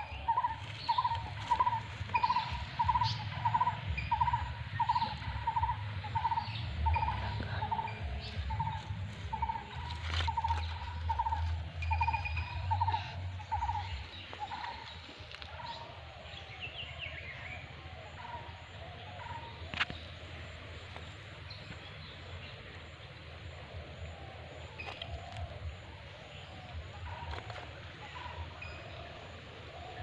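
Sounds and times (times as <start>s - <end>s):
bird calling: 0.0s - 20.2s.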